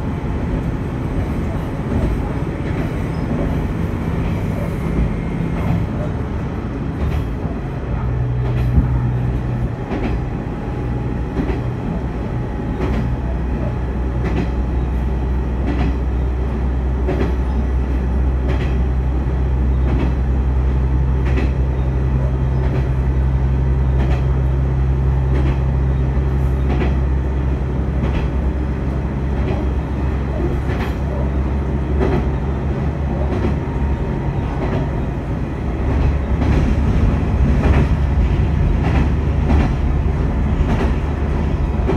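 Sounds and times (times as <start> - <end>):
diesel railcar engine drone: 0.0 - 41.9
wheels clicking over rail joints: 17.0 - 18.9, 19.8 - 23.0, 25.3 - 27.1, 29.3 - 31.4, 35.8 - 41.9.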